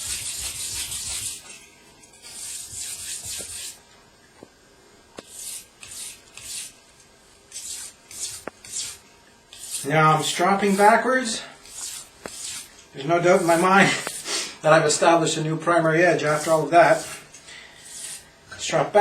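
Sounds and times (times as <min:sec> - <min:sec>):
knife scraping on water stone: 0:02.2 - 0:03.8, 0:05.2 - 0:06.7, 0:07.5 - 0:11.0, 0:11.6 - 0:12.7, 0:17.8 - 0:18.3.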